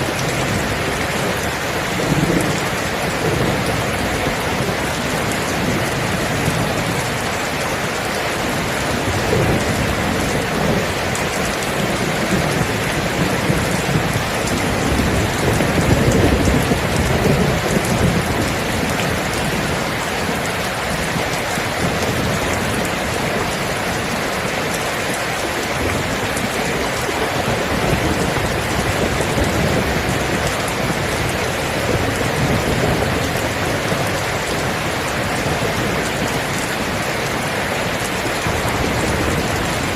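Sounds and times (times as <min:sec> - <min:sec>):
steady rain: 0:00.0 - 0:39.9
low rolling thunder: 0:08.5 - 0:24.8, 0:25.6 - 0:39.9.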